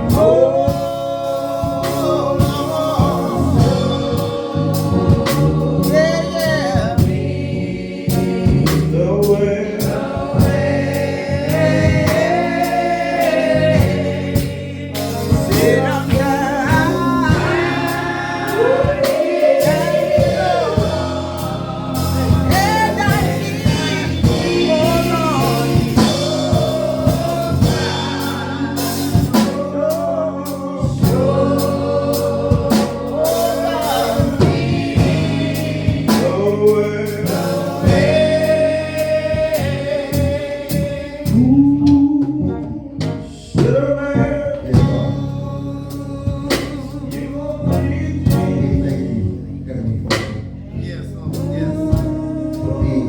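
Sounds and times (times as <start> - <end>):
keyboard or organ chords: 0.0 - 53.0
voices singing together: 0.0 - 53.0
drum hits: 1.6 - 6.1, 6.7 - 7.6, 10.1 - 30.2, 30.8 - 40.4, 44.7 - 45.4.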